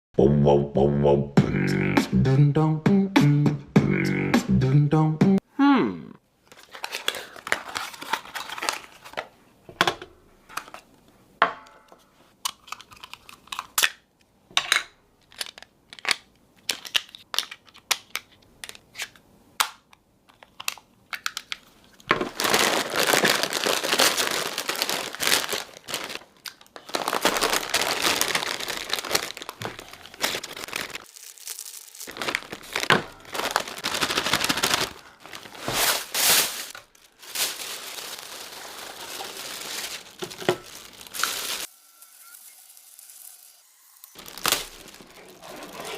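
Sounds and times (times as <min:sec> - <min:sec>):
packaging crinkling and tearing: 0:06.5 - 0:09.3, 0:15.2 - 0:19.1, 0:20.4 - 0:41.7, 0:42.3 - 0:45.9.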